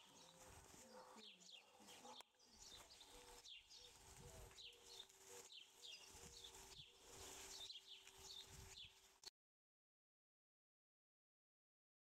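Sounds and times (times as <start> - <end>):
faint bird chirping: 0.0 - 9.3.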